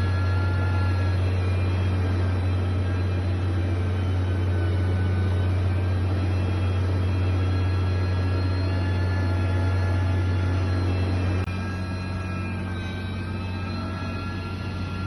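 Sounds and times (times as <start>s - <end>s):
heavy machine engine droning: 0.0s - 15.0s.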